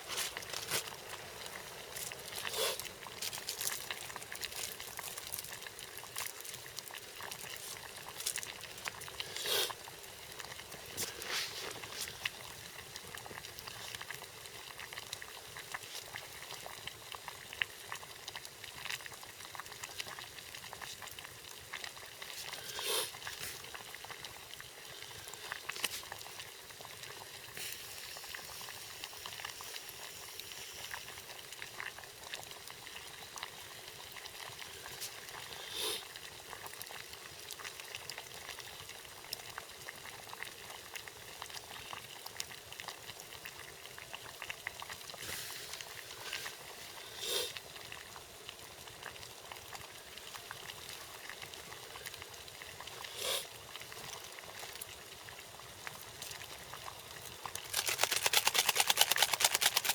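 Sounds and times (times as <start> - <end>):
campfire crackling: 0.0 - 24.4, 48.1 - 59.9
water boiling in a pot: 0.0 - 59.9.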